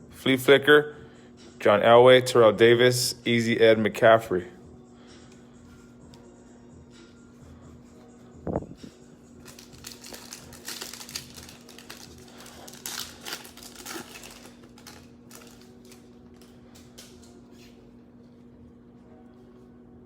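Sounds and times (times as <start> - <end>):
wrapper crinkling and tearing: 9.4 - 17.4
cards being shuffled: 9.4 - 17.8.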